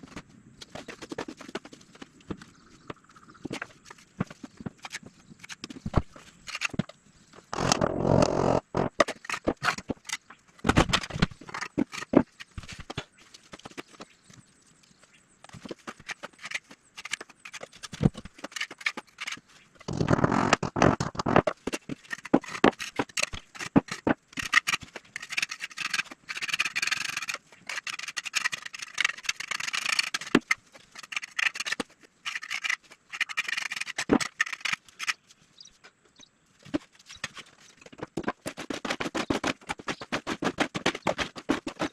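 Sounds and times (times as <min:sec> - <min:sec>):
scraping: 0:36.6 - 0:41.9.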